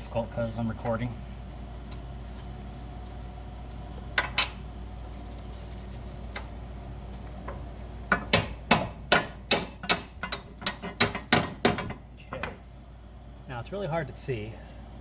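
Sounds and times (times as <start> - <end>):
low fan hum: 0.0 - 15.0
metal tools clinking and tapping: 9.8 - 12.6.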